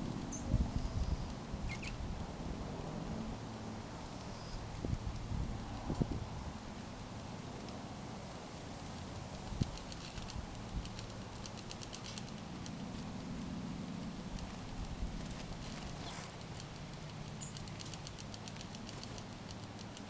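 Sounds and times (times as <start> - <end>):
steady low hum: 0.0 - 20.0
birds pecking clicks and taps: 4.0 - 6.0, 9.3 - 13.1, 14.0 - 20.0.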